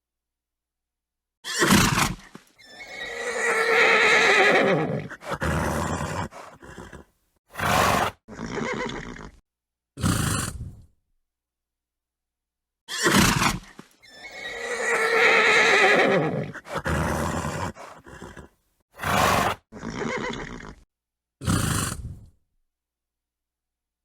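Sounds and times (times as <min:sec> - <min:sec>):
horse blowing: 0:01.4 - 0:09.4, 0:12.9 - 0:20.8
horse neighing: 0:01.4 - 0:09.4, 0:12.9 - 0:20.8.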